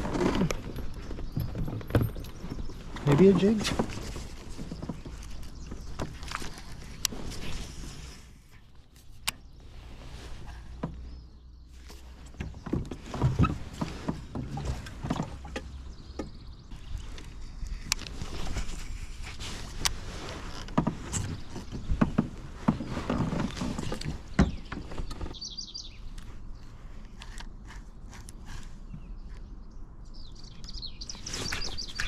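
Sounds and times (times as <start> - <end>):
handling noise: 0.0 - 29.4
bird chirping: 22.7 - 26.8, 28.5 - 32.0.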